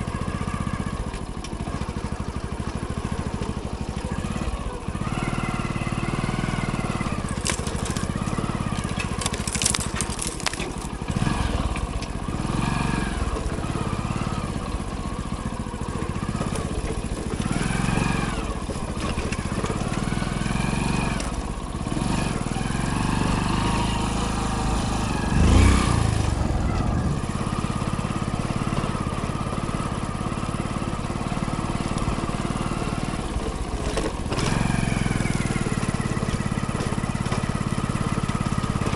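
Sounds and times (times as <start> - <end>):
motorcycle engine running: 0.0 - 38.9
bike jolting over rough trail: 6.3 - 11.8.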